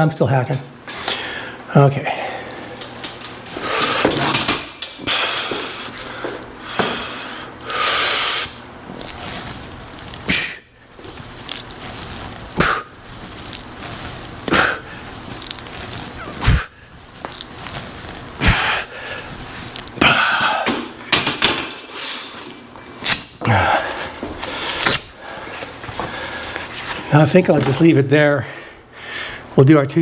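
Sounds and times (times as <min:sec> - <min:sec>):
man breathing hard: 0:01.0 - 0:02.8, 0:05.0 - 0:08.6, 0:18.4 - 0:19.4, 0:20.0 - 0:20.8, 0:23.4 - 0:26.7, 0:28.4 - 0:29.6.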